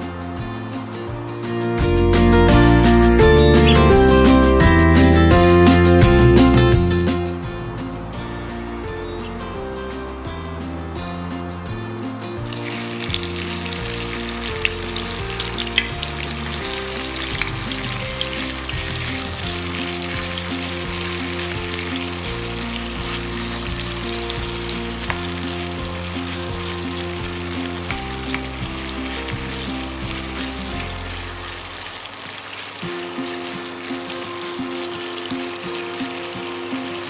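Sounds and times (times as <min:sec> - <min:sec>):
background music with low notes: 0:00.0 - 0:37.0
sausages sizzling in a frying pan: 0:12.4 - 0:37.0.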